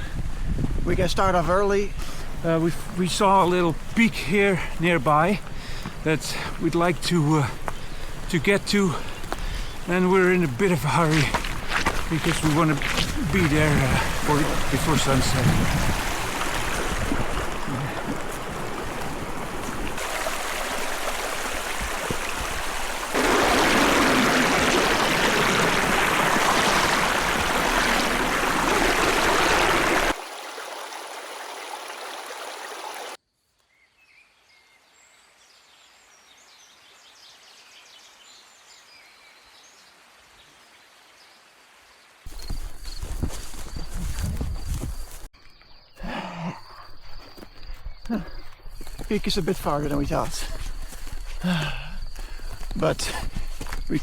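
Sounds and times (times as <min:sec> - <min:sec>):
rushing river water: 0:02.3 - 0:33.2.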